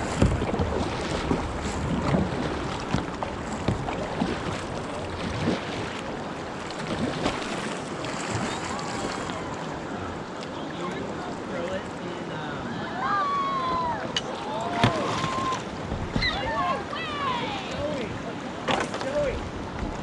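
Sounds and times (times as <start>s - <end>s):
wind buffeting microphone: 0.0s - 5.9s
river water rushing: 0.0s - 20.0s
water splashes: 0.0s - 20.0s.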